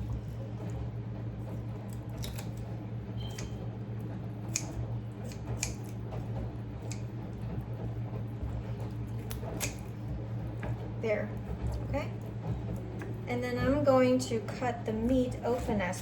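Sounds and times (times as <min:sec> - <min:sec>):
steady low hum: 0:00.0 - 0:16.0
scissors cutting chicken joint: 0:01.8 - 0:03.6, 0:04.5 - 0:06.2, 0:06.8 - 0:07.1, 0:08.8 - 0:10.7.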